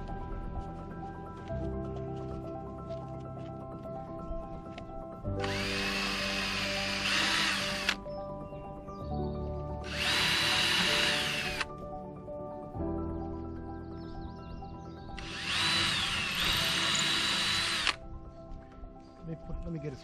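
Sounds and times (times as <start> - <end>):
background music: 0.0 - 20.0
cordless drill motor whine: 5.4 - 8.0, 9.8 - 11.7, 15.2 - 18.0.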